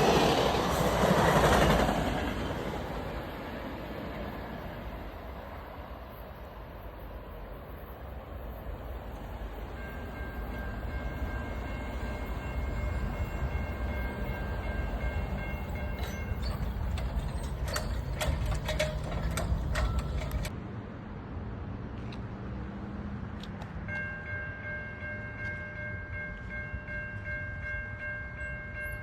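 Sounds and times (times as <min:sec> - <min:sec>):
train rumbling past: 0:00.0 - 0:21.1
wheels clattering over rails: 0:09.8 - 0:20.6.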